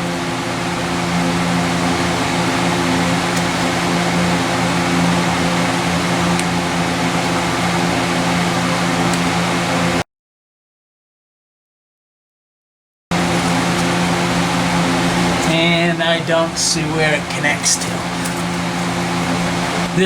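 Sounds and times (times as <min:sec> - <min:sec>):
machine hum: 0:00.0 - 0:10.0, 0:13.1 - 0:20.0
rushing fan noise: 0:00.0 - 0:10.0, 0:13.1 - 0:20.0.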